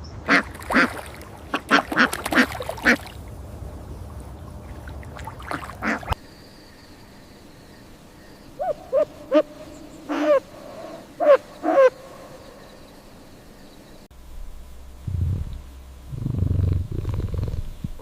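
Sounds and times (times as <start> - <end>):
owl hooting: 8.5 - 12.6.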